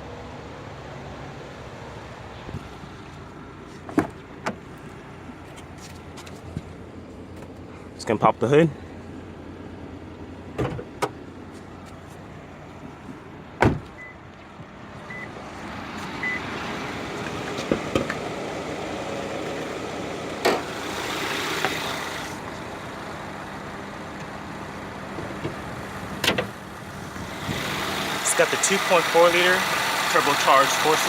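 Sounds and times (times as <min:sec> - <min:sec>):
car engine idling: 0:02.8 - 0:31.0
car hood latch clunking: 0:10.6 - 0:11.2, 0:13.6 - 0:14.0.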